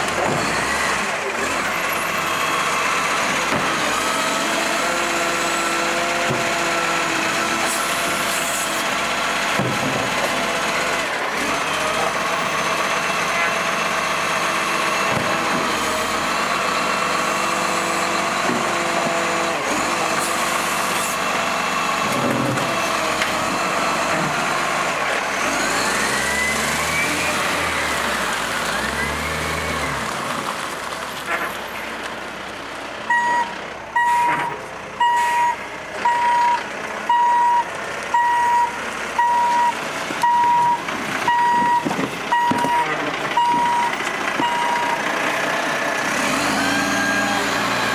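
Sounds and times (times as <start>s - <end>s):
garbage truck engine running: 0.0s - 47.9s
reversing alarm beeps: 33.1s - 45.0s.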